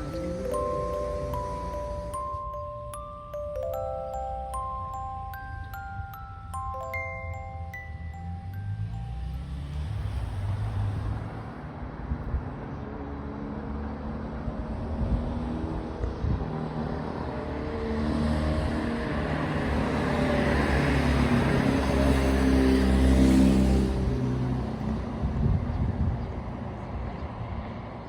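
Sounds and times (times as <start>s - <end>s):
vehicle low rumble: 0.0s - 12.9s
faint engine hum: 0.0s - 13.8s.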